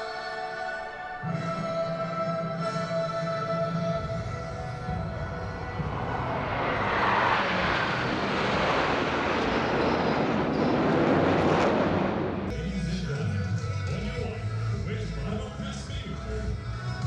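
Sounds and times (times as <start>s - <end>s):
jet aircraft flying past: 4.1s - 12.5s.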